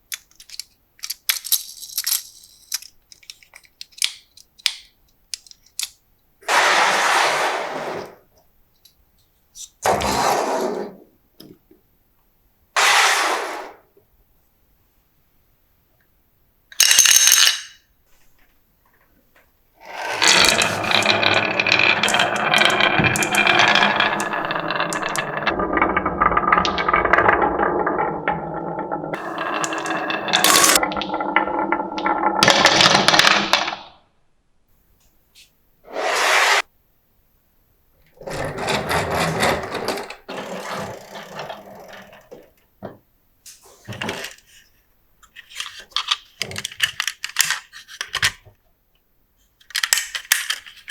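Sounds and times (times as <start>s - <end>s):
marbles rolling on tracks: 6.5s - 8.2s, 12.8s - 13.8s, 19.8s - 33.8s, 38.2s - 42.5s.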